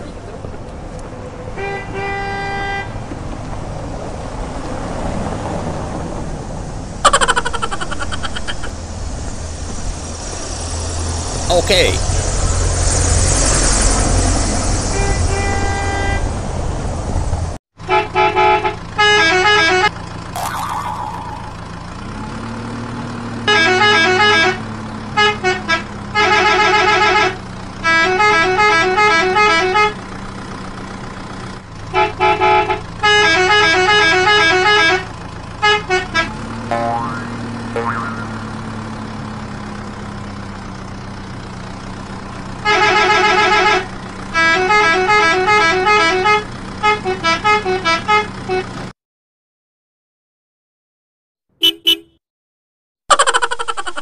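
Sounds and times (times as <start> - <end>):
vehicle horn tooting: 15.0 - 16.3, 23.5 - 24.6, 25.2 - 30.0, 31.9 - 36.3, 42.6 - 48.7, 51.6 - 52.2
engine drone: 18.9 - 24.9, 34.6 - 46.9.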